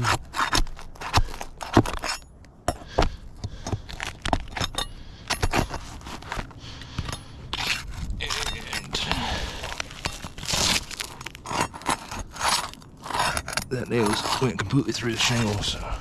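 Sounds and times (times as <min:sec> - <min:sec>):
metal scraping on shingles: 0:03.5 - 0:16.0.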